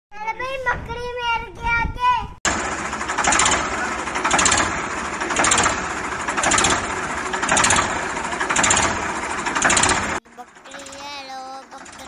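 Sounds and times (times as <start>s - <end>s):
engine running: 2.5s - 12.0s.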